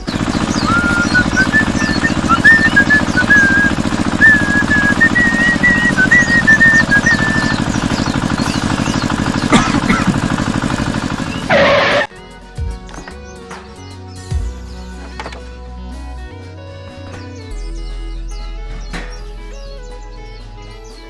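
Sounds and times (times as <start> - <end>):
fast low pulsing: 0.0 - 12.1, 17.4 - 21.0
person whistling a tune: 0.5 - 7.8.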